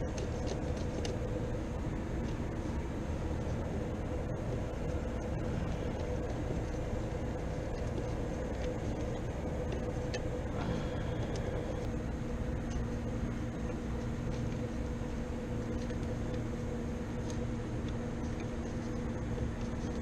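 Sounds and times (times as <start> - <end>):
machinery humming: 0.0 - 20.0.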